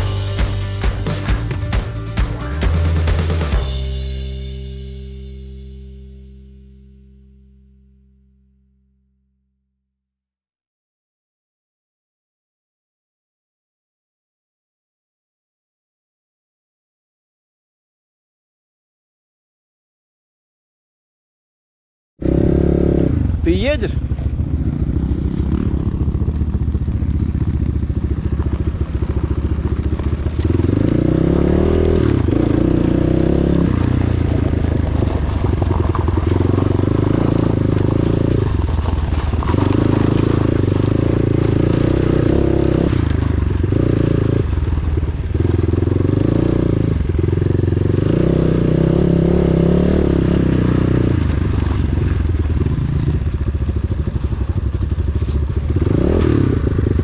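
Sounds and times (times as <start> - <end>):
motorcycle engine revving: 0.0 - 7.2, 22.2 - 57.0.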